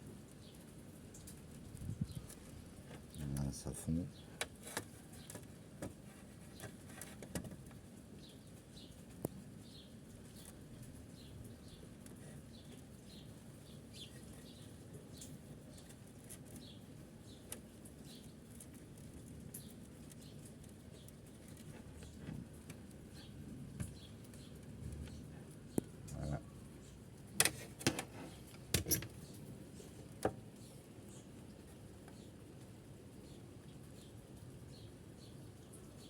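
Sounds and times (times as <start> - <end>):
small bird chirping: 8.2 - 27.1.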